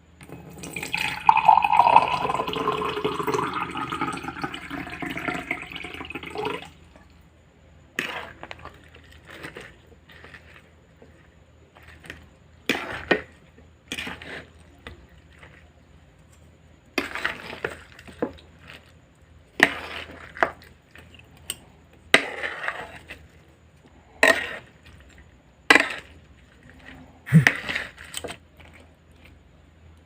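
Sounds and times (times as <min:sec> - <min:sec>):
crunchy vegetables being chewed: 0:07.9 - 0:29.7.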